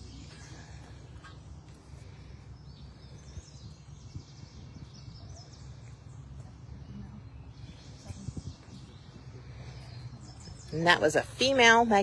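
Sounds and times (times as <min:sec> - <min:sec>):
birds singing faintly: 0:00.0 - 0:12.0
low outdoor rumble: 0:00.0 - 0:12.0.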